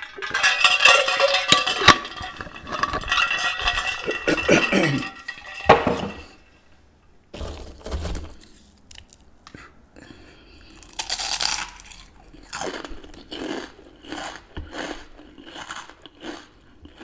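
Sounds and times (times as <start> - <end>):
glassware clinking: 0.0 - 6.4.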